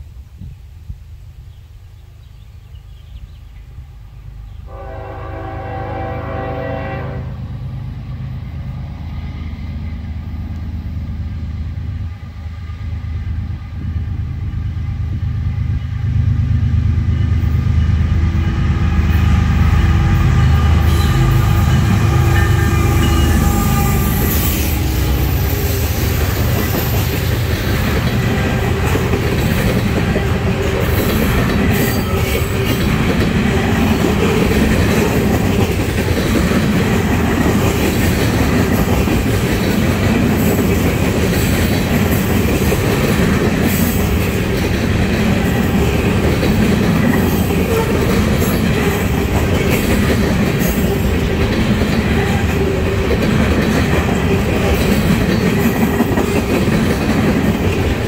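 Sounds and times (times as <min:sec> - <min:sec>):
locomotive horn blast: 0:04.7 - 0:07.5, 0:19.6 - 0:26.0, 0:47.6 - 0:48.6.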